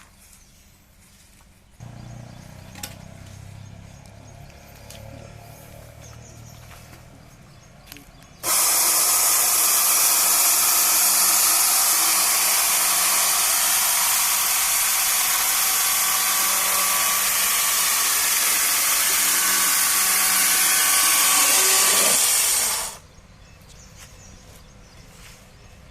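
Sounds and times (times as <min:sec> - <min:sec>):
sawmill saw cutting log: 0:08.4 - 0:23.0.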